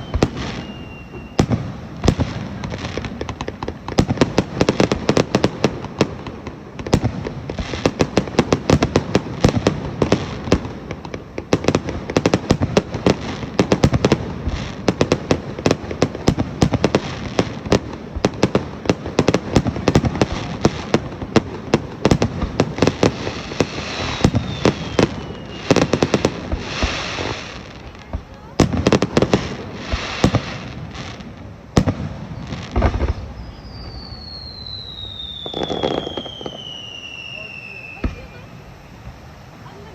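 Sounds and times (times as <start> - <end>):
falling firework whistle: 0.0 - 2.7, 22.1 - 27.6, 31.8 - 39.8
fireworks bangs and crackles: 0.0 - 39.9.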